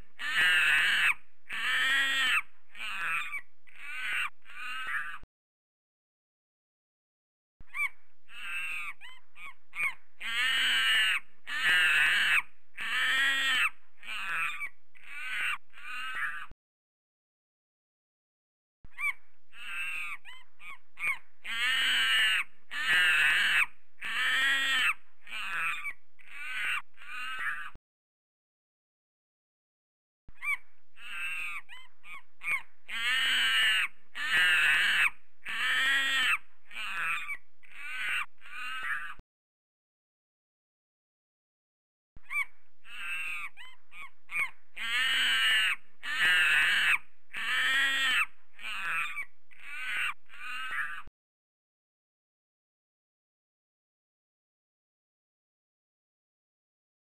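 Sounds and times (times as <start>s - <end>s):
bird calls: 0.0s - 5.2s, 7.7s - 16.5s, 18.9s - 27.8s, 30.4s - 39.2s, 42.2s - 51.1s.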